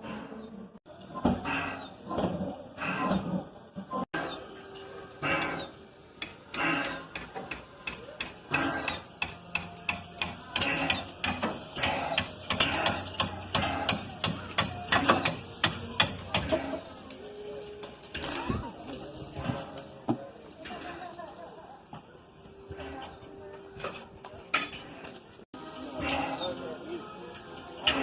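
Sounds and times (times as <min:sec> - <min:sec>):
train wheels clacking over rail joints: 0:05.2 - 0:21.1.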